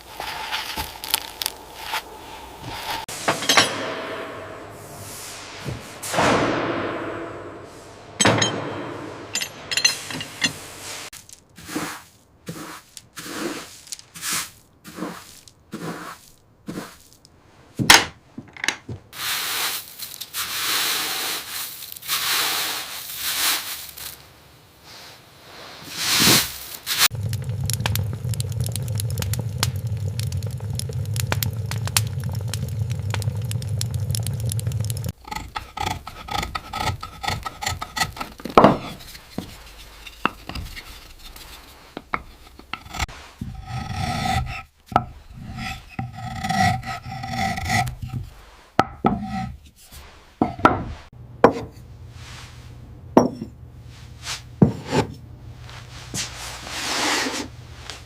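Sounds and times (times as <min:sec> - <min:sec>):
rasping strokes: 0:11.6 - 0:17.1, 0:26.2 - 0:51.1
scraping wood: 0:25.9 - 0:51.8.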